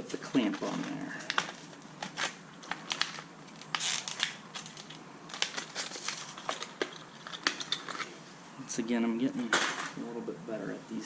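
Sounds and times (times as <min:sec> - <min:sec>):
scraping rustle: 0:00.2 - 0:08.4.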